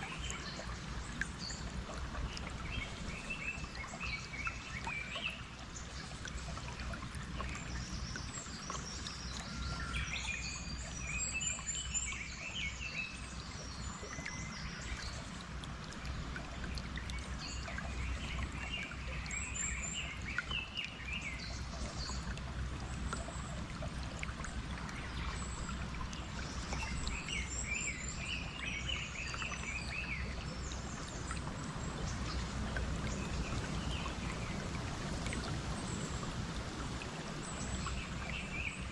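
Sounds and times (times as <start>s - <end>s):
flowing water: 0.0s - 38.9s.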